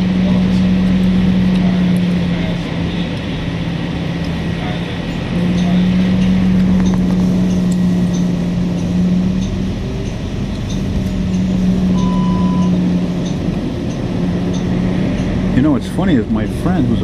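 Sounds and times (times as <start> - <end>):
bus drivetrain drone: 0.0 - 17.0
road rumble: 0.0 - 17.0
short electronic beep: 11.9 - 12.8.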